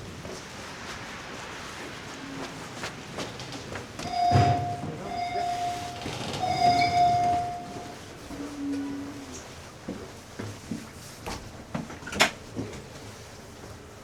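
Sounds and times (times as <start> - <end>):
train rumble: 0.0 - 14.0
high warning tone: 4.0 - 8.0
short lower tone: 4.1 - 8.0.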